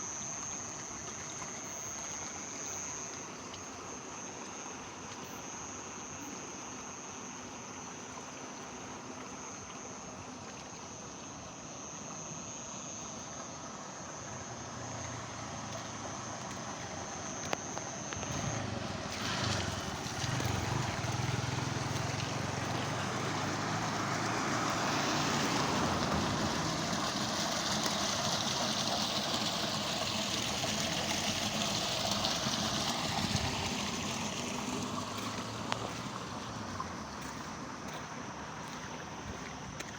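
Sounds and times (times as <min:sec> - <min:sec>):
high insect-like whine: 0:00.0 - 0:39.9
rain falling: 0:18.3 - 0:37.3
water running: 0:18.3 - 0:39.9.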